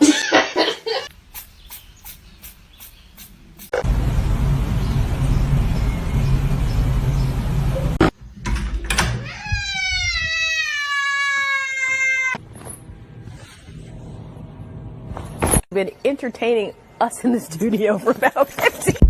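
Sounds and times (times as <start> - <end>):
steady rumbling noise: 3.4 - 8.0
cat meowing: 9.2 - 12.4.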